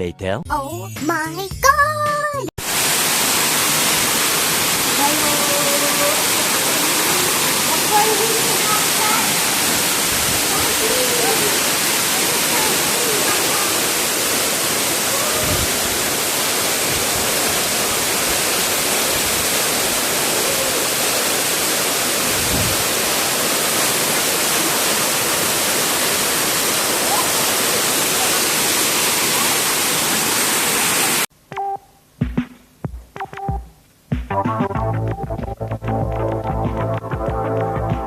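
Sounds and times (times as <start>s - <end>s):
waterfall roaring: 2.6s - 31.3s
brief tones: 31.5s - 32.0s.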